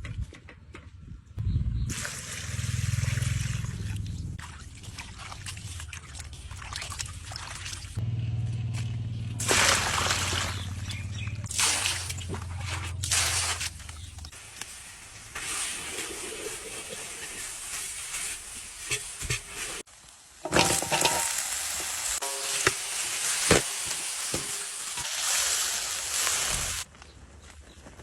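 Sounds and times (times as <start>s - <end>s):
utensil stirring in pan: 13.3s - 21.5s
meat sizzling in oil: 14.9s - 26.9s.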